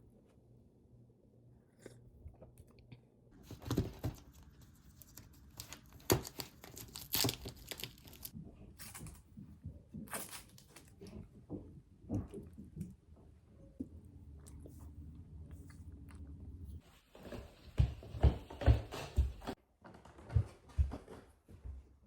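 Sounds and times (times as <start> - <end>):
crinkling and rustling: 3.4 - 13.0.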